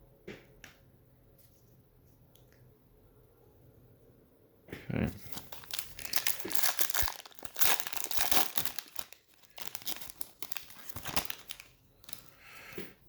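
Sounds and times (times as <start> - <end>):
foil wrapper crinkling and tearing: 5.2 - 12.4.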